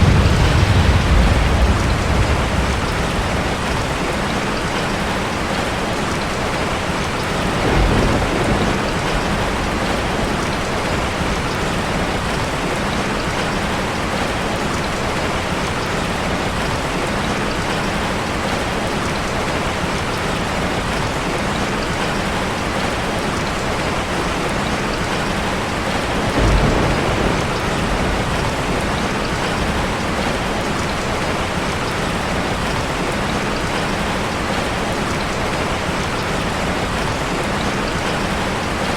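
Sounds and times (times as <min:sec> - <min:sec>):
low rumbles of thunder: 0:00.0 - 0:15.4, 0:24.6 - 0:33.8
heavy rain on a car: 0:00.0 - 0:38.9.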